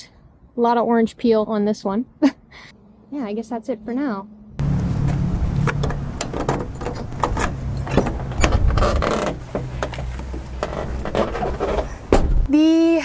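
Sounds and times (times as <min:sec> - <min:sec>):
vehicle engine humming: 0:02.8 - 0:12.5
sharp clicks and rattles: 0:04.6 - 0:12.5.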